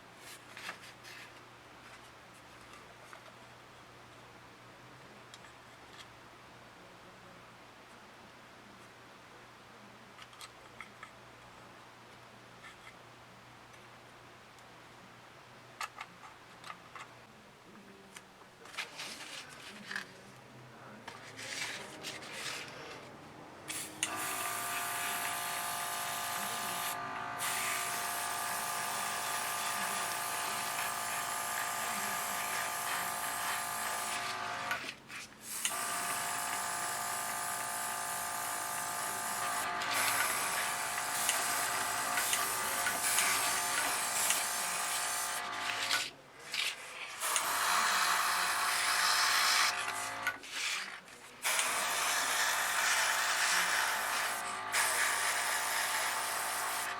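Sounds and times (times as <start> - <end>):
small electric motor buzzing: 23.7 - 34.8, 35.5 - 46.1, 47.1 - 50.4, 51.4 - 56.9.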